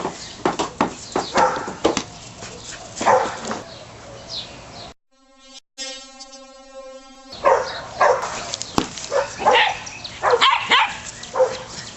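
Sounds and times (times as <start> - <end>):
flat buzzing tone: 5.1 - 8.2
puppy yipping and barking: 7.4 - 8.4, 9.1 - 11.9.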